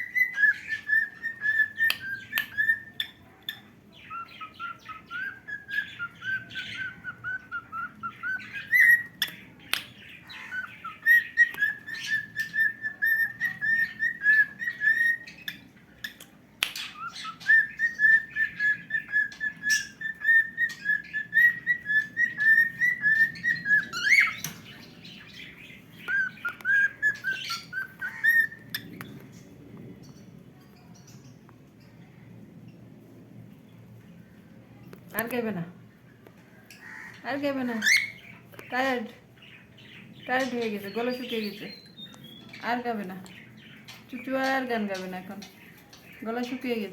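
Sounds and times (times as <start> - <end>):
cockatiel whistling: 0.0 - 3.0, 4.1 - 9.2, 10.4 - 15.3, 16.8 - 24.6, 26.1 - 28.8.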